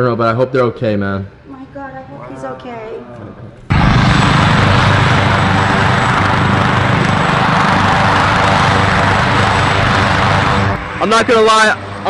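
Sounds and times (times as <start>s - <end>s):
low hum: 3.0s - 12.0s
helicopter engine and rotor: 3.7s - 12.0s.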